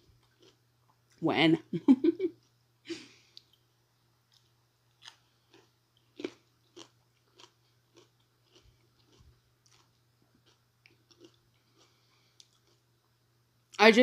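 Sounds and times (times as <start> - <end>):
chewing raw cucumber: 0.0 - 1.0, 4.3 - 12.9.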